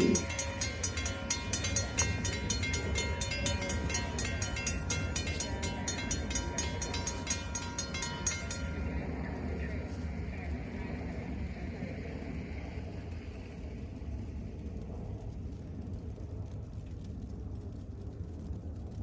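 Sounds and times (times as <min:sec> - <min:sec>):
wheels clicking over rail joints: 0:00.0 - 0:11.9
train rumbling: 0:00.0 - 0:13.8.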